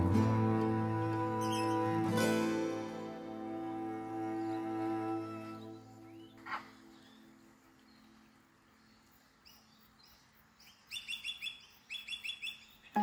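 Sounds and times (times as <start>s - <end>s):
bird calling: 0.0s - 8.0s, 10.6s - 13.0s
rapid sharp bird chirps: 9.5s - 13.0s.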